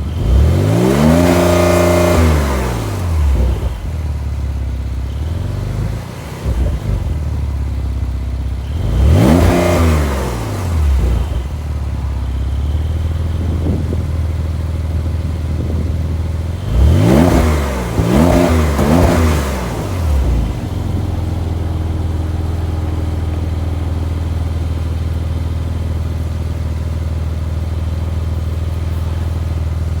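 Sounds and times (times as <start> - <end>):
car engine idling and revving: 0.0 - 30.0.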